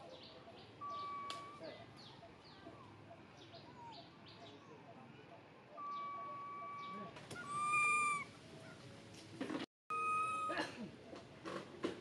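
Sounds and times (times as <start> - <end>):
birds chirping: 0.0 - 8.9
whistle-like bird call: 0.8 - 1.6, 5.8 - 8.3, 9.9 - 10.5.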